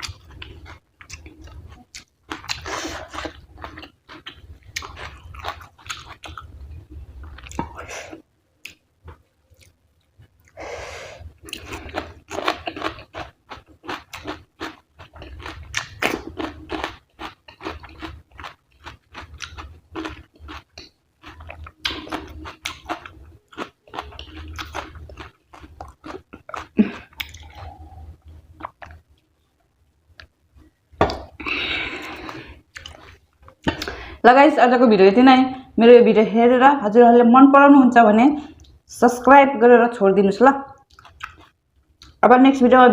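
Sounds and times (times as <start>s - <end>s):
chewing food with wet smacking: 0.0s - 6.6s, 8.6s - 10.6s, 11.4s - 29.2s, 32.1s - 33.9s, 40.8s - 42.2s.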